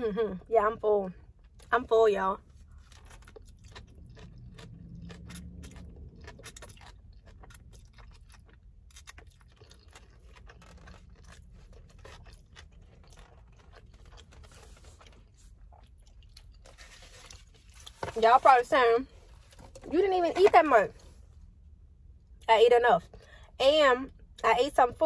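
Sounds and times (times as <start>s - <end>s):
low steady hum: 0.0s - 25.0s
close-up chewing: 2.4s - 18.2s.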